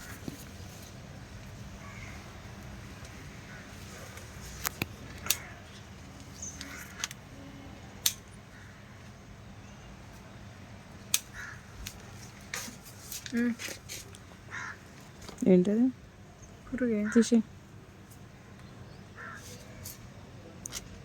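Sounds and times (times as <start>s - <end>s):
crows cawing: 1.8s - 2.4s, 3.1s - 4.4s, 5.1s - 5.8s, 6.4s - 7.1s, 8.5s - 9.1s, 11.3s - 11.8s, 14.5s - 15.0s, 16.9s - 17.4s, 19.2s - 19.7s.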